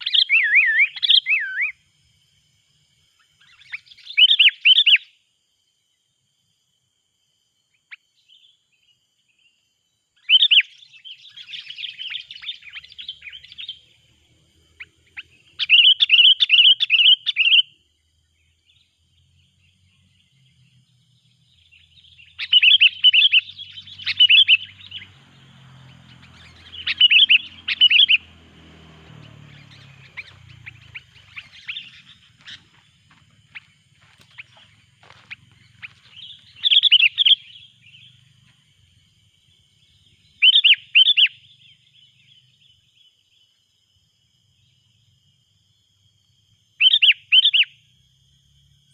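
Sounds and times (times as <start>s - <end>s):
bulbul chattering calls: 3.4s - 5.1s, 10.2s - 14.0s, 14.7s - 17.7s, 21.6s - 43.0s, 46.8s - 47.7s.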